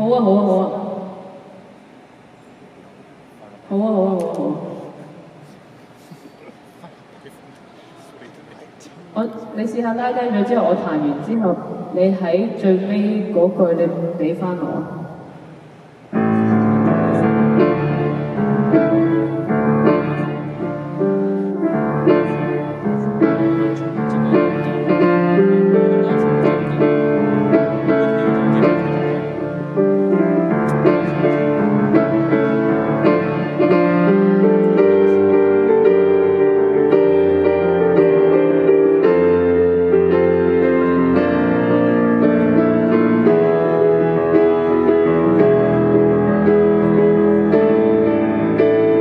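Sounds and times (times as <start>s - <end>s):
solo piano through sound system: 16.1s - 49.0s.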